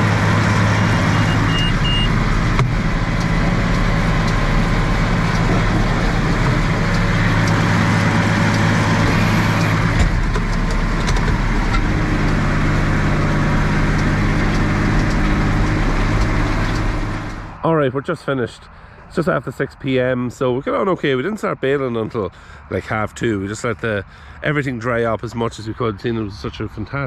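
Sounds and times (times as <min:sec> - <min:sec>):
tractor diesel engine running: 0:00.0 - 0:20.1.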